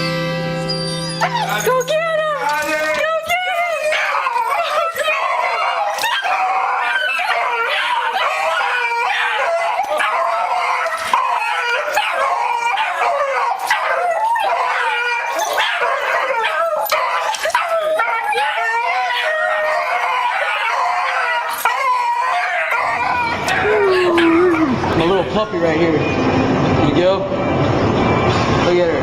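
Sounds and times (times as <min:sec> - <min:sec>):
dog whining and yipping: 0:00.7 - 0:02.4, 0:03.4 - 0:24.8.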